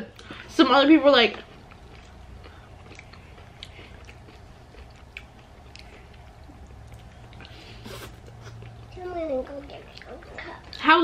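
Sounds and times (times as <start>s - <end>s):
low steady hum: 0.0s - 11.0s
mouth chewing clicks and smacks: 1.5s - 7.6s.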